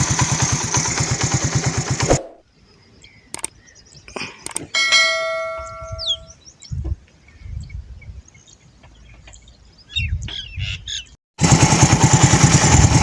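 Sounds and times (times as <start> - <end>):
sharp clicks: 3.3 - 3.6, 4.4 - 4.8
metal object ringing like a bell: 4.8 - 6.3.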